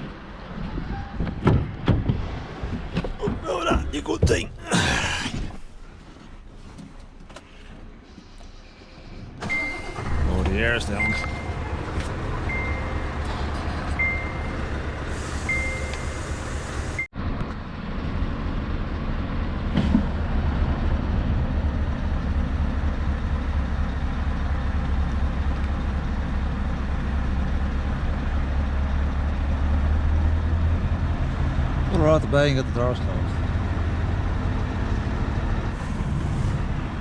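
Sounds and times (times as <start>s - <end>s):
truck engine idling: 9.0s - 29.6s
high warning beep: 10.8s - 11.6s, 12.5s - 13.1s, 14.0s - 14.6s, 15.4s - 16.2s.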